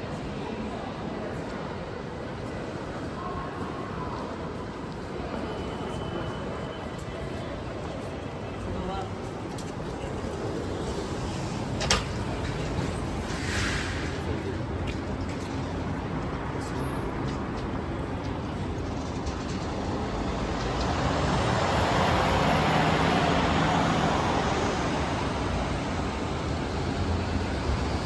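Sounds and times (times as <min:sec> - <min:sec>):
wet traffic noise: 0:09.5 - 0:18.3.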